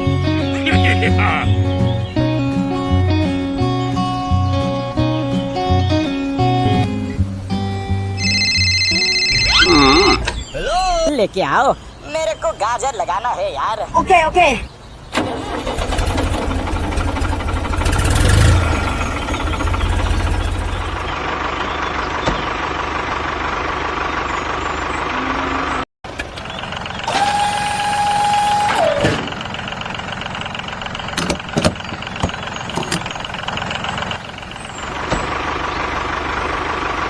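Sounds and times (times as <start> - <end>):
tractor engine rumbling: 0.0 - 37.0
held tone dropping in pitch: 8.2 - 11.1.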